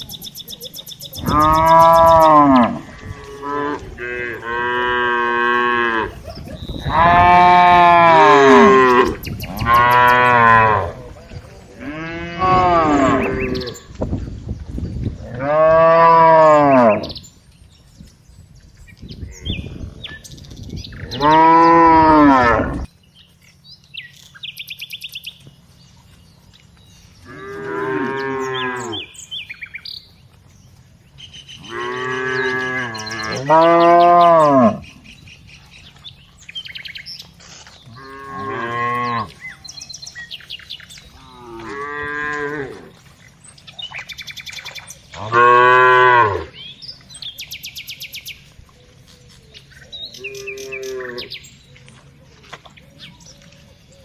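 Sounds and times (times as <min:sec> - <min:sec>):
cows mooing: 0:01.2 - 0:14.0, 0:15.2 - 0:17.2, 0:21.0 - 0:22.9, 0:27.2 - 0:29.7, 0:31.6 - 0:35.2, 0:37.9 - 0:43.2, 0:45.1 - 0:46.7, 0:50.1 - 0:51.5.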